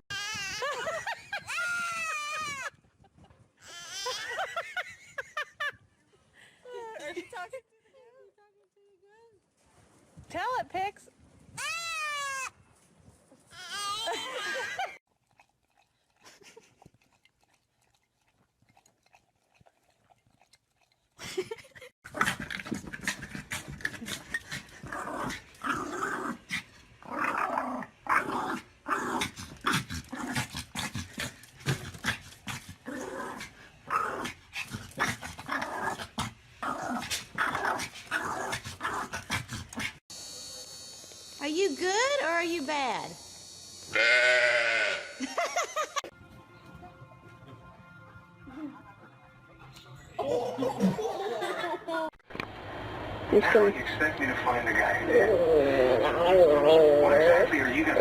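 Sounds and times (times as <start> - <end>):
dog growling: 22.1 - 40.0.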